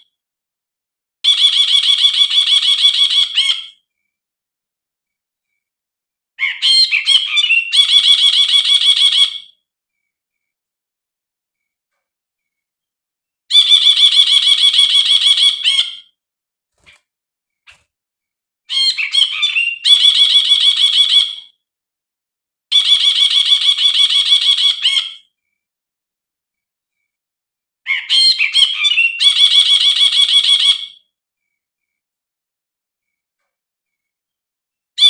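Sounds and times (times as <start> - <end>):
bird singing trills: 6.4 - 9.6, 18.7 - 21.5, 27.9 - 31.1.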